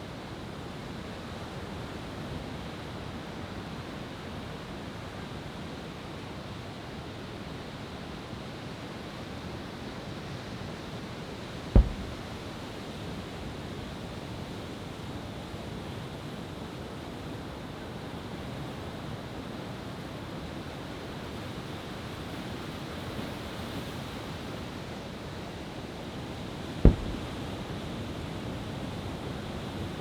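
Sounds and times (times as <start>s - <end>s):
firework shell booms: 11.8s - 12.6s, 26.9s - 27.8s.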